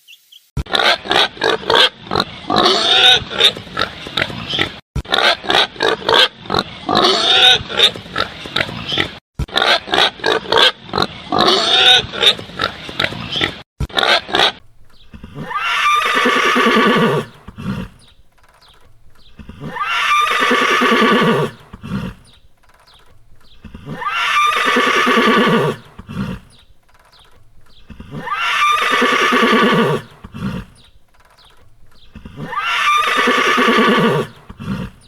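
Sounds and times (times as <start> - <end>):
pigs grunting and squealing: 0.6 - 18.2, 18.8 - 26.7, 27.4 - 31.0, 31.6 - 35.0
horse neighing: 11.4 - 18.2, 18.8 - 35.0.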